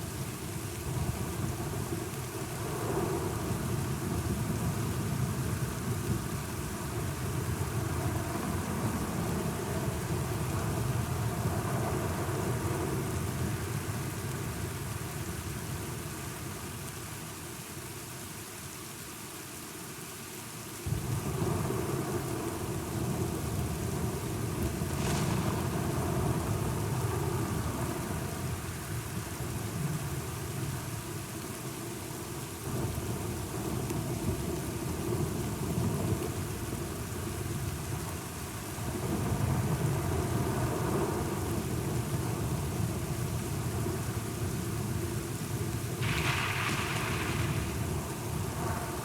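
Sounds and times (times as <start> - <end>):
steady rain: 0.0 - 49.0
rolling thunder rumble: 45.5 - 49.0.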